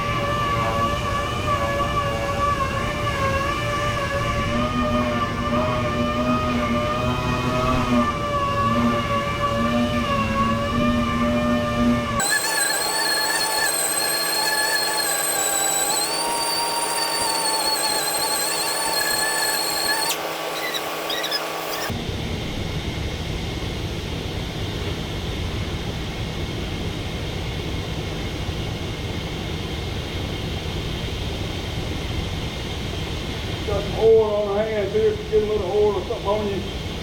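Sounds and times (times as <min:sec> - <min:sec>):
small motor whining: 0:00.0 - 0:22.0.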